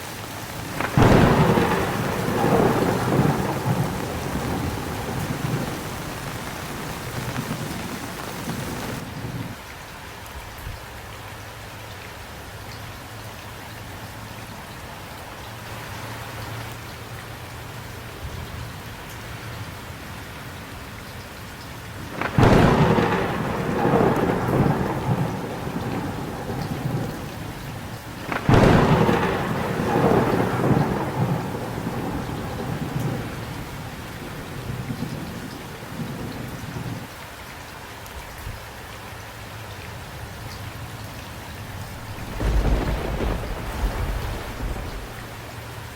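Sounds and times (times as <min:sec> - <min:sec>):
steady rain: 0:00.0 - 0:45.9
thunderclaps rumbling: 0:00.5 - 0:09.6, 0:22.0 - 0:37.1, 0:41.6 - 0:45.9.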